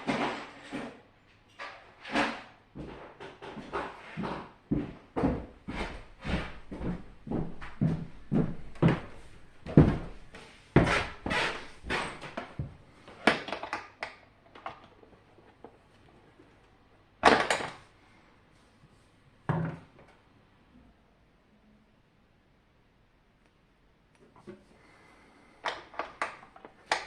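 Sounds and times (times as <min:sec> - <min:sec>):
plastic parts knocking and scraping: 0:10.8 - 0:15.8, 0:25.6 - 0:27.0.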